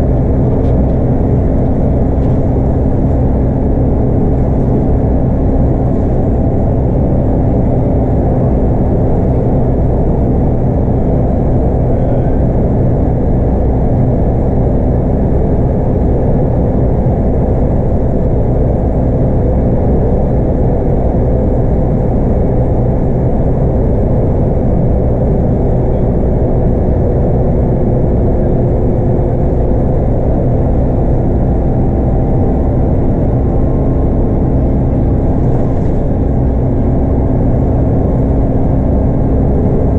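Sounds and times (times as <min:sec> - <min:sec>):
bus diesel engine rumble: 0:00.0 - 0:39.9
faint steady whine: 0:00.0 - 0:39.9.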